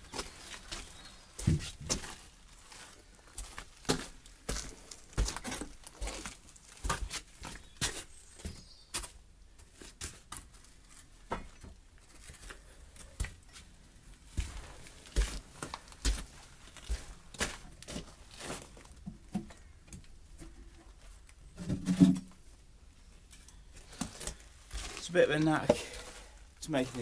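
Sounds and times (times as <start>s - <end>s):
timber knocks and scrapes: 21.6s - 22.3s.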